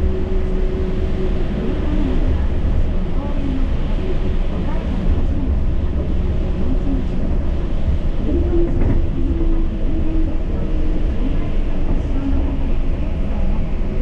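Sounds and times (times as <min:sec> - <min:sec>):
train running with low rumble: 0:00.0 - 0:14.0.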